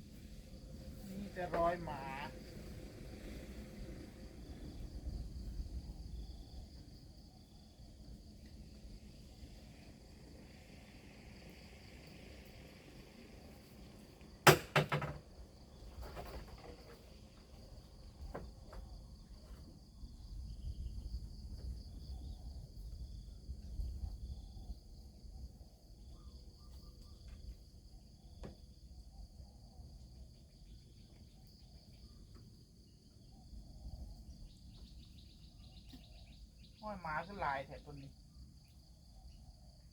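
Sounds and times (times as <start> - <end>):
insects trilling: 0.0 - 14.4, 15.3 - 39.9
sharp knock and clatter: 14.5 - 15.2.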